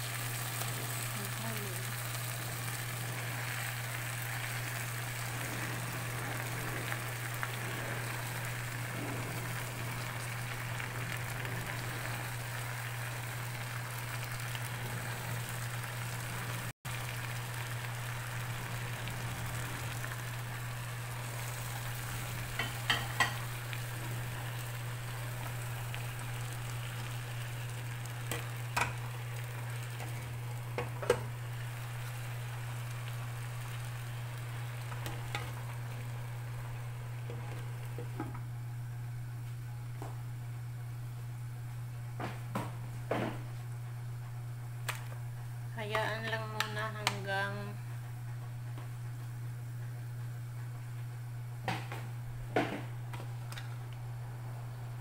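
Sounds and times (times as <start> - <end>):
food sizzling in a pot: 0.0 - 38.6
steady low hum: 0.0 - 55.0.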